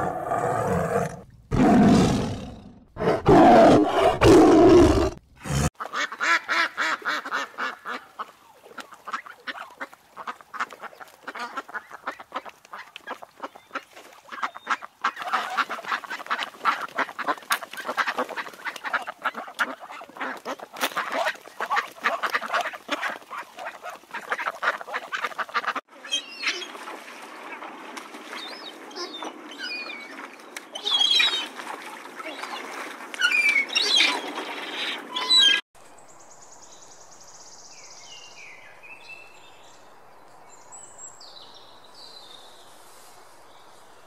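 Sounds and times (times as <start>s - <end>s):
waterfowl honking and quacking: 5.8s - 26.8s
birds chirping and whistling: 33.2s - 35.6s.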